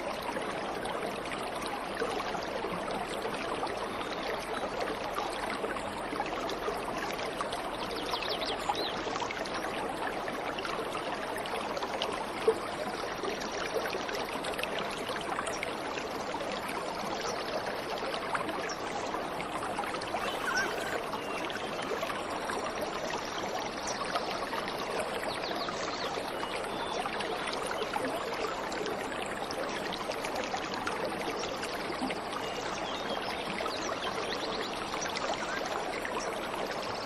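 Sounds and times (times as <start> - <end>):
waterfall rushing: 20.1 - 21.1
faint bird chirps: 20.1 - 21.7.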